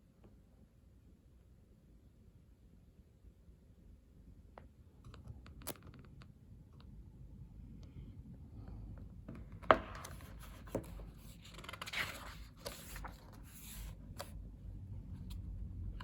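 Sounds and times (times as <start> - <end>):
paper pages rustling: 9.4 - 14.4.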